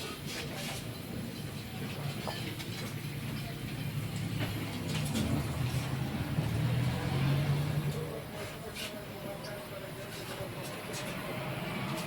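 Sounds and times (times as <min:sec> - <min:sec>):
engine humming: 0:02.5 - 0:08.4.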